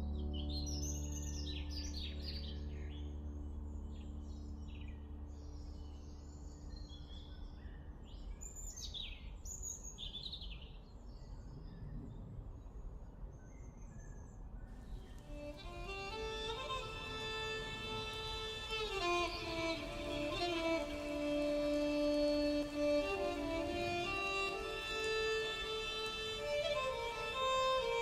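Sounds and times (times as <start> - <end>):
soft background music: 0.0 - 9.4, 15.0 - 28.0
birds chirping: 13.4 - 28.0.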